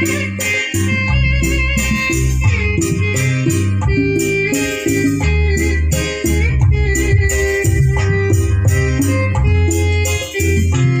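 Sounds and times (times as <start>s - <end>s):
loud music with heavy bass: 0.0s - 11.0s
sustained keyboard notes: 0.0s - 11.0s.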